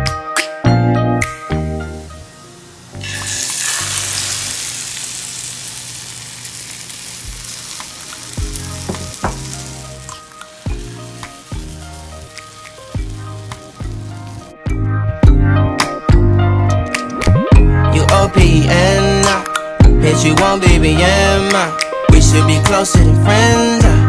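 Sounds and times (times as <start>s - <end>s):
background music with a beat: 0.0s - 2.0s, 7.3s - 24.0s
omelette mixture sizzling in pan: 1.8s - 14.6s.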